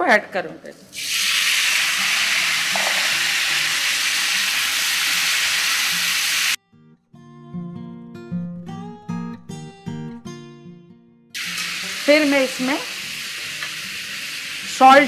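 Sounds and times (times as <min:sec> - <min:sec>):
tomatoes sizzling in hot oil: 0:01.0 - 0:06.6, 0:11.4 - 0:15.0.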